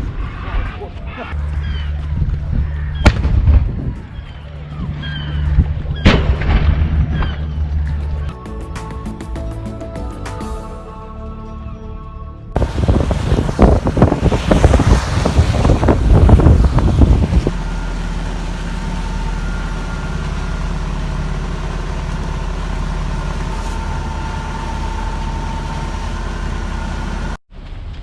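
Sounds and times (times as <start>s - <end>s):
wind buffeting microphone: 0.0s - 7.8s, 12.6s - 25.6s
engine drone with faint whine: 1.3s - 8.3s, 12.6s - 28.0s.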